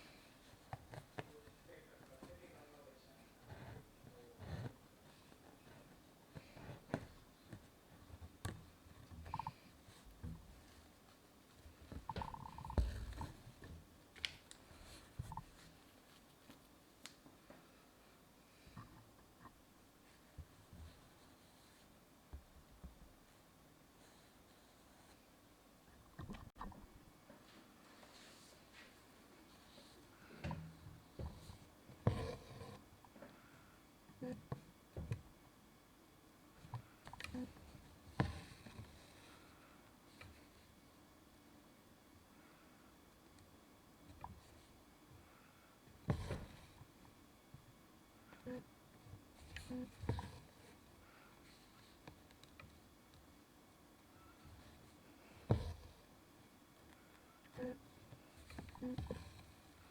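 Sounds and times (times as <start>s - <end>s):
needle through fabric: 3.4s - 9.1s, 31.0s - 32.8s.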